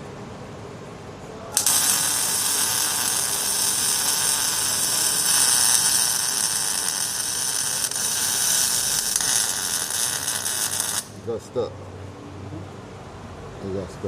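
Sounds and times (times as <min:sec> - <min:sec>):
welding arc crackling hiss: 0:01.5 - 0:11.3.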